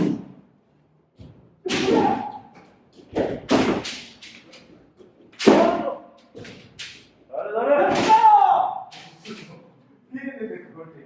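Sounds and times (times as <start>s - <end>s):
bamboo swords striking: 0.0s - 0.4s, 1.6s - 2.5s, 3.1s - 4.4s, 5.4s - 7.1s, 7.8s - 9.3s
person shouting: 1.7s - 2.4s, 7.4s - 8.9s.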